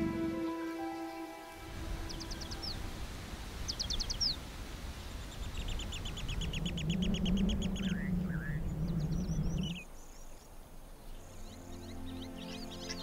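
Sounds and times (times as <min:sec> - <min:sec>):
birds calling: 0:00.0 - 0:02.9, 0:03.5 - 0:04.4, 0:05.1 - 0:13.0
low outdoor rumble: 0:04.4 - 0:09.9.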